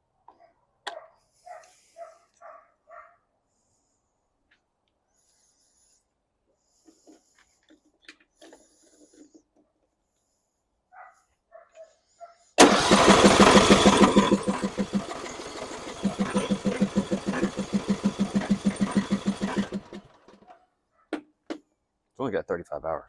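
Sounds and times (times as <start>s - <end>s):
mower engine cranking: 12.6s - 20.4s.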